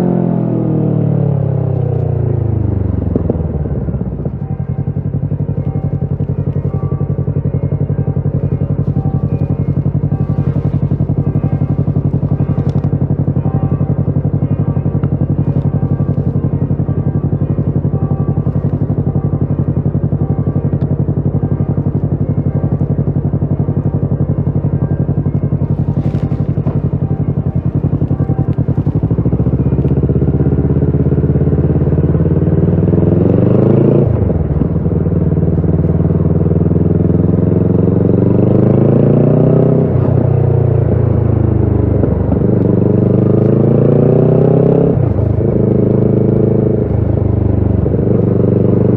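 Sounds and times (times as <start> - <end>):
motorcycle engine accelerating: 0.0 - 48.9.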